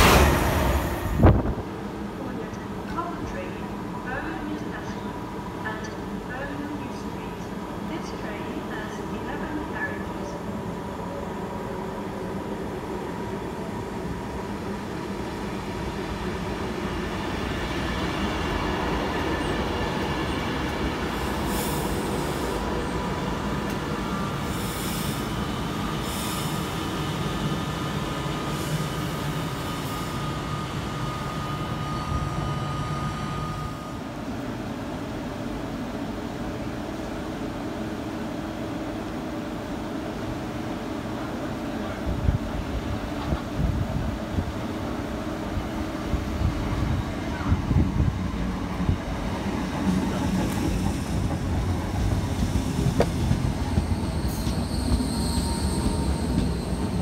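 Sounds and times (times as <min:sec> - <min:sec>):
train wheels rumbling on rail: 0:37.9 - 0:57.0.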